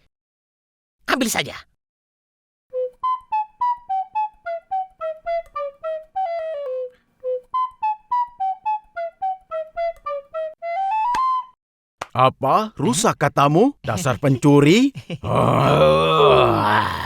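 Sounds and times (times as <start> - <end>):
flute playing light melody: 2.7 - 11.6.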